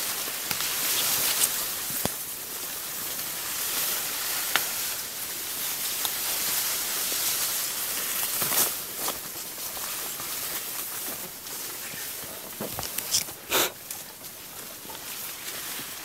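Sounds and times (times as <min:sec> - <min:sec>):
outdoor hiss: 0:00.0 - 0:16.0.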